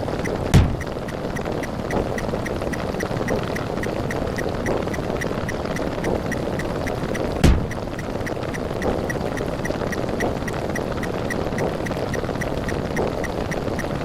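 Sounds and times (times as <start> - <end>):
noisy rumble: 0.0 - 5.5, 6.5 - 8.8
quick regular ticks: 0.0 - 14.0.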